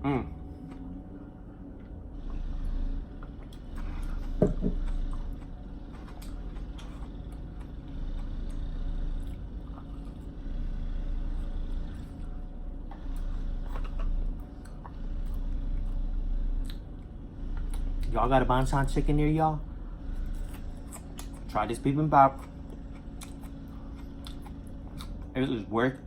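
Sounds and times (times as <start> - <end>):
steady low hum: 0.0 - 26.0
chewing and mouth sounds: 3.1 - 10.6, 11.2 - 18.2, 20.2 - 25.4.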